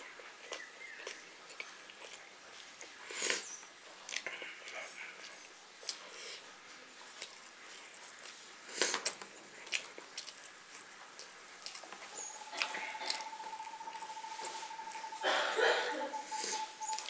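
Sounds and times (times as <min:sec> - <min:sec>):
wet chewing and mouth smacks: 0:00.0 - 0:15.2, 0:16.2 - 0:17.0
faint steady high tone: 0:12.0 - 0:17.0.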